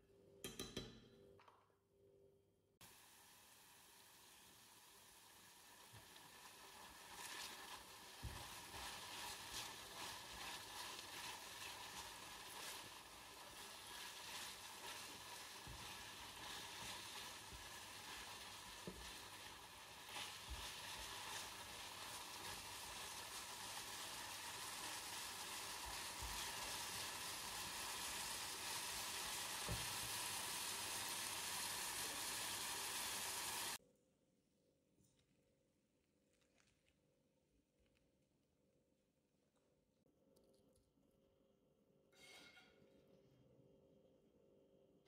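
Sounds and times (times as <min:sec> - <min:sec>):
mushrooms sizzling in oil: 0:02.8 - 0:33.8
spatula stirring: 0:06.0 - 0:30.3.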